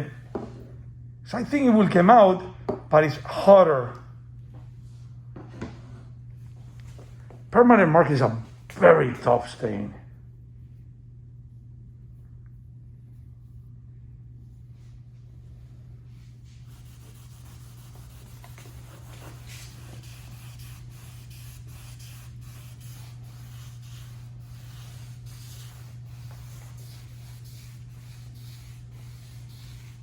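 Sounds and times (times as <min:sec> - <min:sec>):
steady low hum: 0:00.0 - 0:30.0
rag scrubbing vinyl floor: 0:16.6 - 0:30.0.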